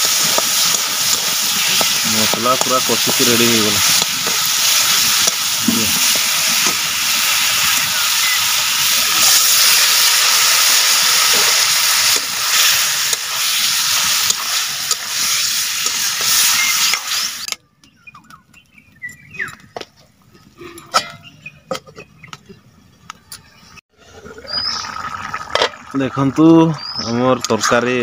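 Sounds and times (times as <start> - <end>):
spices sizzling in a pan: 0.0 - 17.5.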